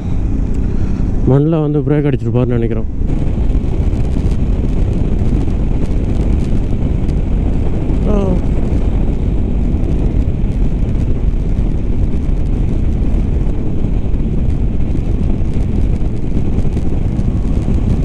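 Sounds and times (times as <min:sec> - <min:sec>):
motorcycle engine: 0:00.0 - 0:18.0
road noise: 0:00.0 - 0:18.0
wind on microphone: 0:00.0 - 0:18.0.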